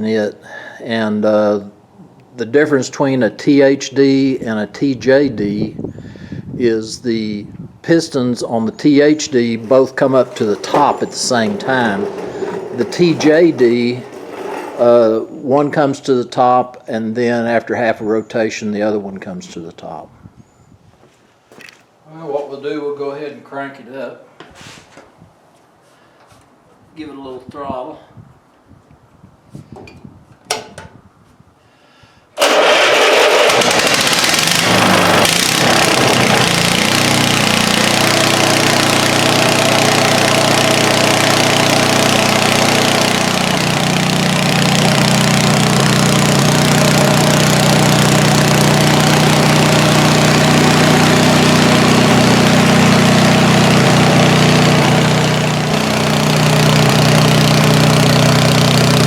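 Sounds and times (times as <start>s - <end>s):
two-cylinder engine running: 9.0s - 14.9s, 32.4s - 59.0s.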